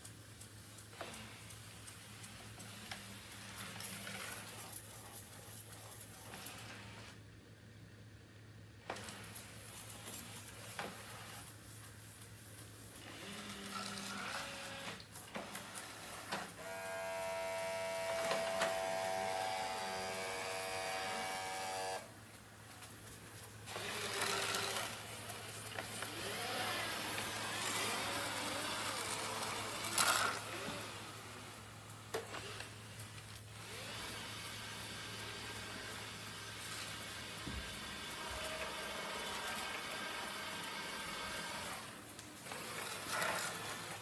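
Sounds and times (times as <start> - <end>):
mechanical hum: 0.0 - 44.0
robot vacuum motor whine: 13.1 - 22.1, 23.7 - 32.7.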